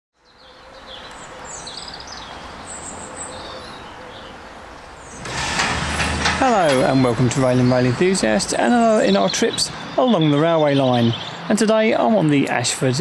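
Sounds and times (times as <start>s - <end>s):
small birds chirping: 0.2s - 5.4s, 6.4s - 13.0s
outdoor background noise: 0.2s - 13.0s.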